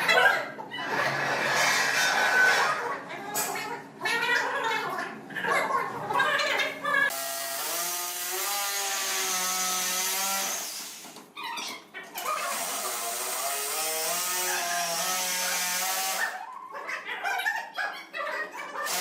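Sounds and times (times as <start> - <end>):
power tool whining on wood: 7.1 - 11.0, 12.5 - 16.3.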